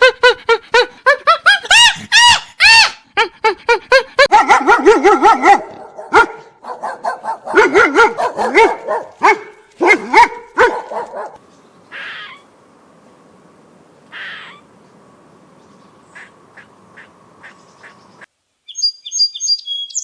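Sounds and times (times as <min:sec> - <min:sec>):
small dog yapping: 0:04.2 - 0:11.4.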